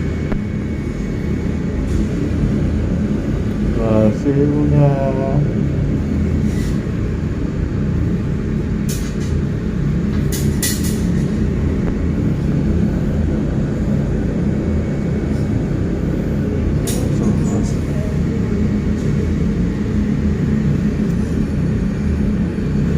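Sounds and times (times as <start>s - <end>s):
machinery droning: 0.0s - 22.9s.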